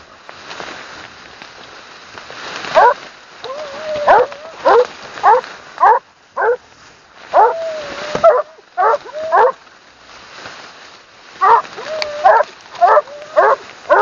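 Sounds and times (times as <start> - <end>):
dogs barking: 2.8 - 6.6, 7.3 - 9.6, 11.4 - 14.0
dogs howling: 2.8 - 6.6, 7.4 - 9.6, 11.4 - 14.0.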